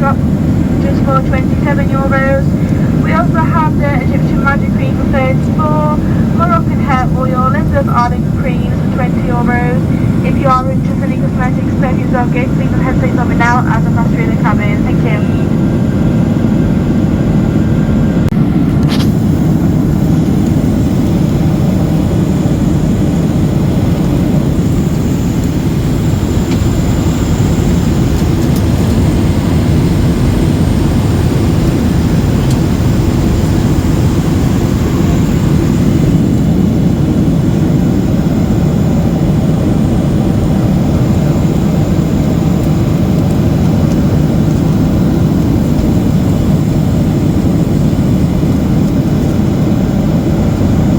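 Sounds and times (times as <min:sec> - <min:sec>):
airplane cabin engine rush: 0:00.0 - 0:50.9
airflow past fuselage: 0:00.1 - 0:48.3.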